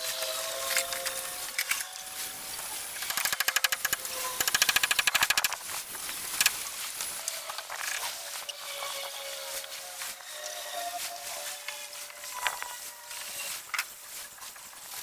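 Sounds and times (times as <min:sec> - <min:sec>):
power tool rattling on wood: 0:02.7 - 0:06.6.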